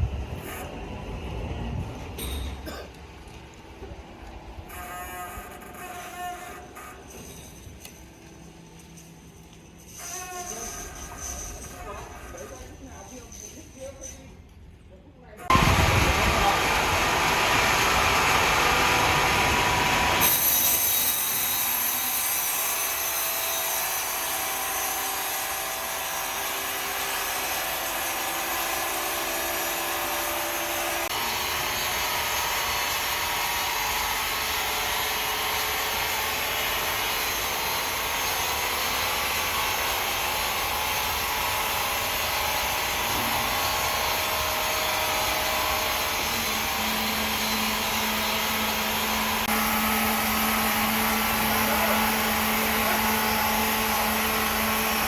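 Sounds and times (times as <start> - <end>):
saw cutting through log: 15.5 - 55.0.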